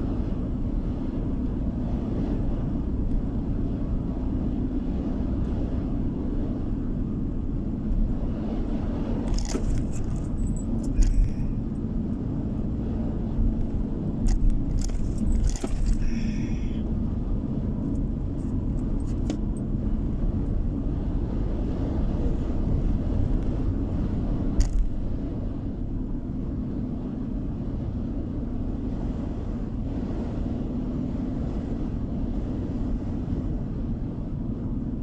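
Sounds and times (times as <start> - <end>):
car road and engine rumble: 0.0 - 35.0
light clicking and jingling: 9.3 - 12.5, 13.6 - 16.9.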